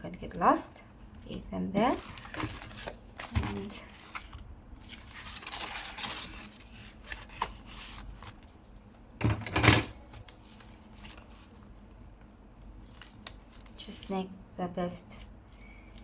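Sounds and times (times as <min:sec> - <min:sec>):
paper rustling: 0:01.8 - 0:08.7, 0:10.1 - 0:11.7, 0:12.8 - 0:14.1.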